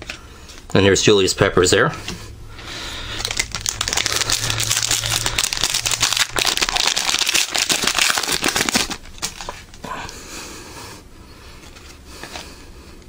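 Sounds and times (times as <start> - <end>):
plastic wrapper crinkling: 2.9 - 9.8.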